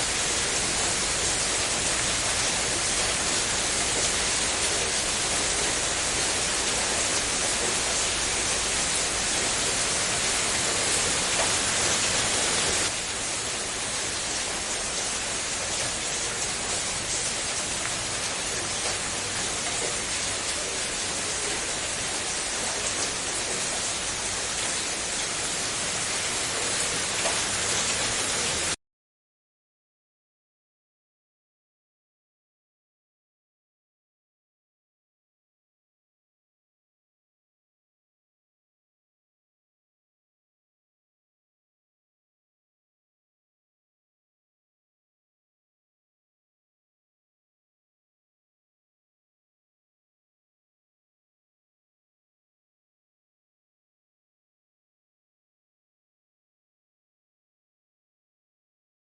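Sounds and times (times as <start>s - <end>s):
heavy rain: 0.0s - 28.8s.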